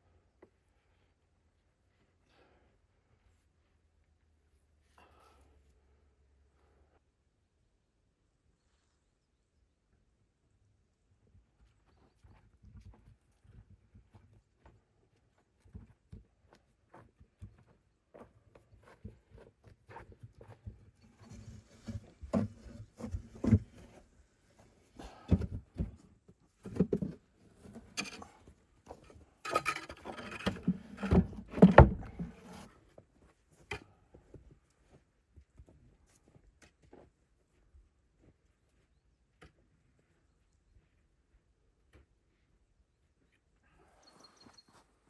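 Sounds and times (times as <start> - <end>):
objects being handled: 26.6 - 32.7.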